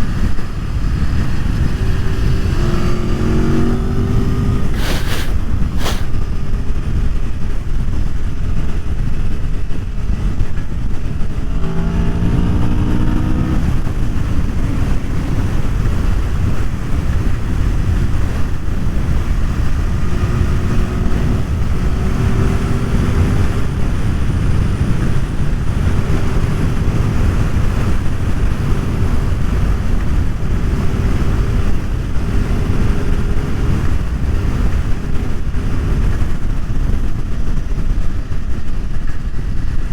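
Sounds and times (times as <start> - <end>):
motorcycle engine revving: 0.0 - 6.2, 8.3 - 38.4
wind rumble on microphone: 0.0 - 39.9.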